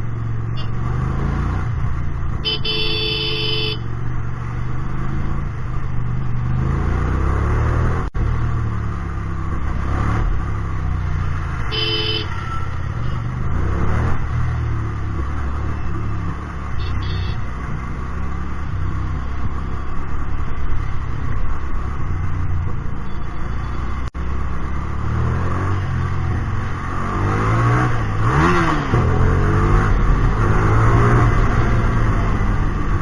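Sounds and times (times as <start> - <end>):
motorcycle engine revving: 0.0 - 33.0
vehicle horn: 2.4 - 3.9, 11.6 - 13.2, 16.8 - 17.5.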